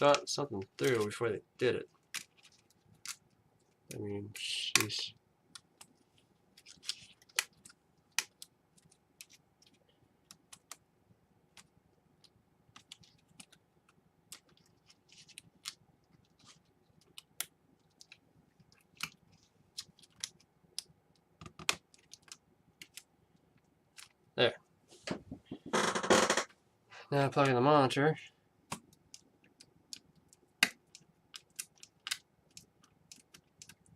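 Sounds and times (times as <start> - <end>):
plastic laptop parts clicking: 6.6 - 10.8, 11.5 - 23.1, 28.7 - 33.9.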